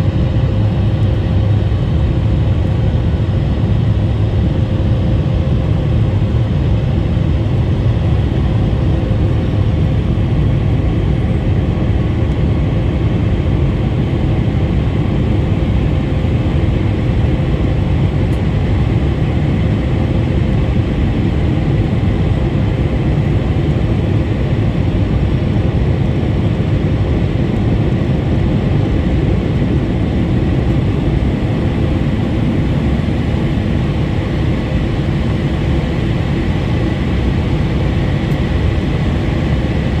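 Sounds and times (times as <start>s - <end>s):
airplane cabin engine noise: 0.0s - 40.0s.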